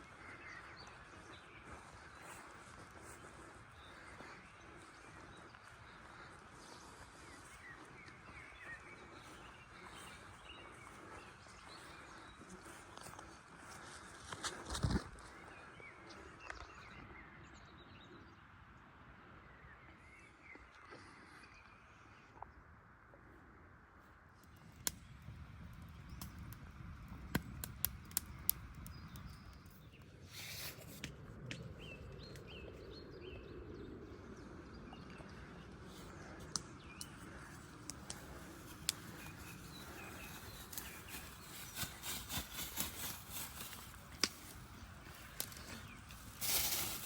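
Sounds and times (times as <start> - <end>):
clicks and rustles: 37.8 - 47.0.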